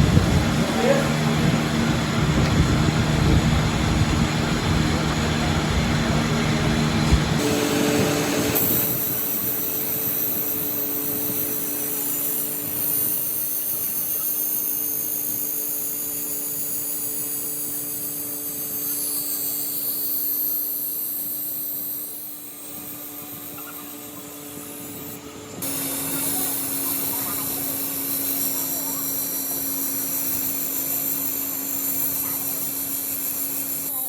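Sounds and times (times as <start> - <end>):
machinery whining and humming: 0.0 - 34.0.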